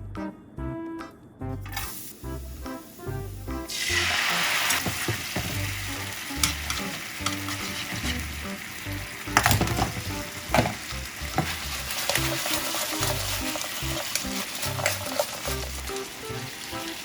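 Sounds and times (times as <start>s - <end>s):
food sizzling in a pan: 1.7s - 17.0s
utensil scraping and knocking pan: 6.4s - 8.4s, 9.4s - 15.3s.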